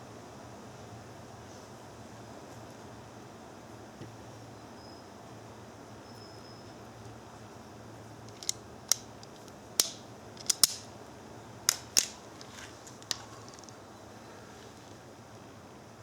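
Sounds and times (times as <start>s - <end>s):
wire stripper clicks and snaps: 8.3s - 10.9s, 11.7s - 13.8s.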